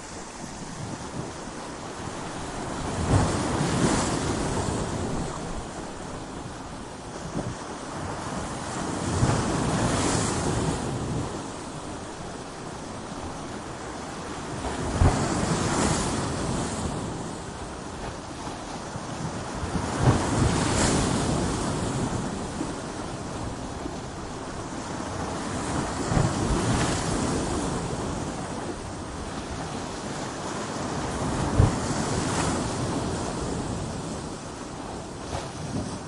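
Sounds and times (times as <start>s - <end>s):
ocean surf roaring: 0.0s - 36.0s
wave thudding against rocks: 14.7s - 17.1s, 30.7s - 34.3s.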